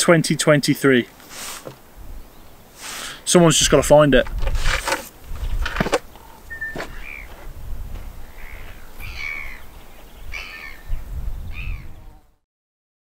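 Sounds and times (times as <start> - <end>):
bird calling harshly: 6.1 - 7.4, 8.2 - 12.0.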